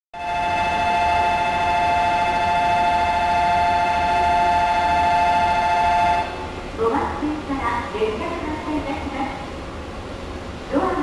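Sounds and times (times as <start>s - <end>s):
electronic two-tone ringing: 0.2s - 6.5s.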